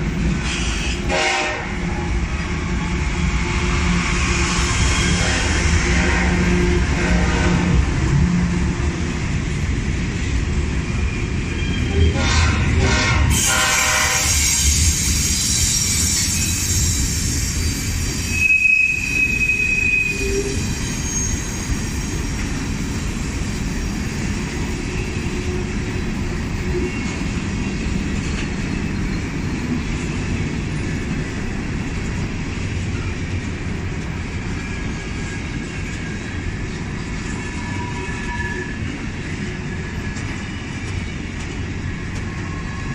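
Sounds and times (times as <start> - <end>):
train wheels rumbling on rails: 0.0 - 42.9
high-pitched wheel squeal: 13.3 - 22.4, 37.3 - 38.8.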